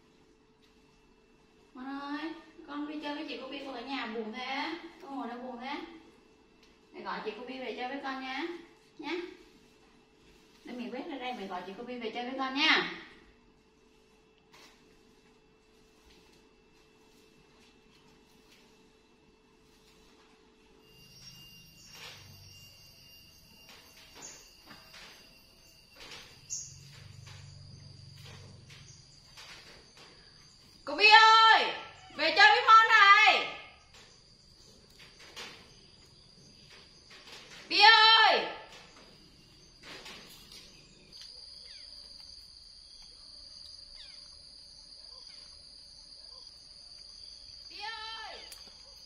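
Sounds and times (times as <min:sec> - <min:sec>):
broom sweeping tiled floor: 0:00.0 - 0:43.9
thin high-pitched whine: 0:00.0 - 0:49.0
insects buzzing: 0:00.9 - 0:49.0
bird chirping: 0:20.9 - 0:30.8, 0:38.8 - 0:47.7.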